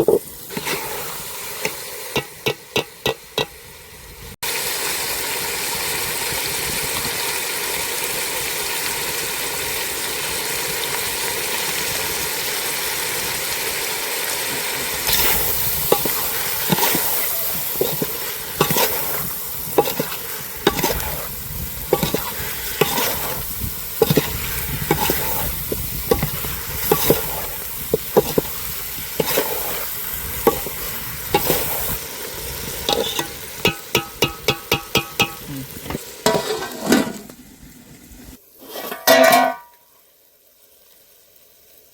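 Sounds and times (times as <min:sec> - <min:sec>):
utensil scraping a pan: 0:00.0 - 0:03.5, 0:15.1 - 0:32.0, 0:32.9 - 0:37.4, 0:38.6 - 0:39.7
meat sizzling in hot oil: 0:00.0 - 0:41.9.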